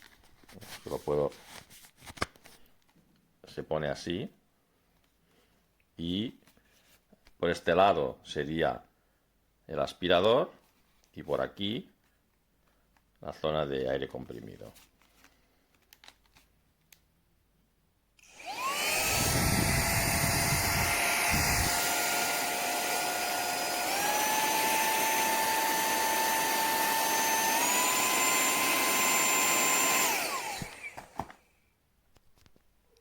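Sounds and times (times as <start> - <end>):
handheld vacuum motor whine: 18.2 - 31.4.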